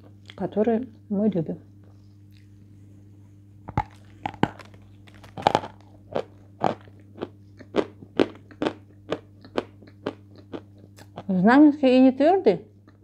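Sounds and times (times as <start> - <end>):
marshmallow crunching when chewed: 3.7 - 11.4.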